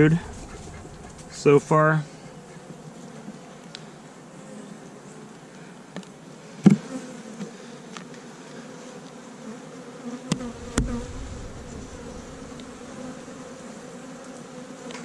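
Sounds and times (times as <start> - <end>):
bees buzzing: 0.0 - 3.2, 10.3 - 14.4
sharp knocks: 10.3 - 13.6.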